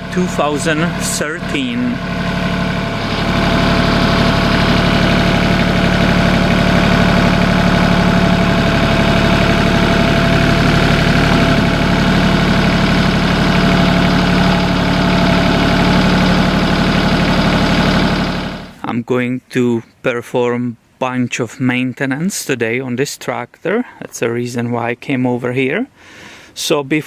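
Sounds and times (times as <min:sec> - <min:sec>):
tractor diesel engine idling: 0:00.0 - 0:18.8.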